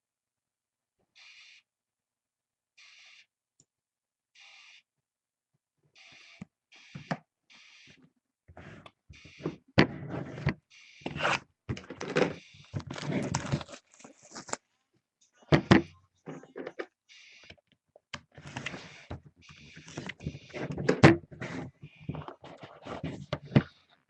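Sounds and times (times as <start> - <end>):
card packaging rustling and scraping: 11.1 - 14.7, 18.4 - 23.9.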